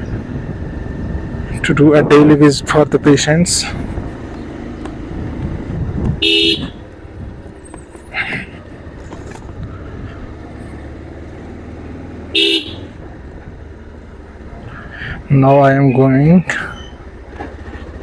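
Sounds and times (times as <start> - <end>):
road traffic and engine rumble: 0.0 - 18.0
vehicle horn beeps: 6.2 - 6.8, 12.3 - 13.0.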